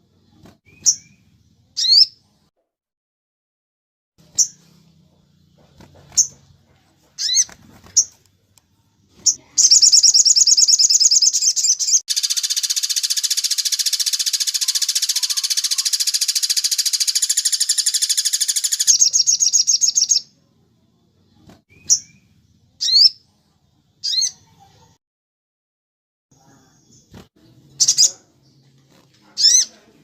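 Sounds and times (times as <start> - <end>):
songbird trilling: 9.2 - 20.2
sharp bird chirps: 9.2 - 20.3.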